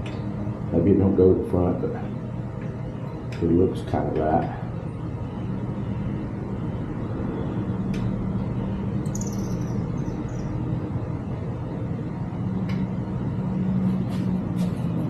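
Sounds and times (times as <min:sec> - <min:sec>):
low mechanical hum: 0:00.0 - 0:15.0
short high chirp: 0:09.1 - 0:10.5.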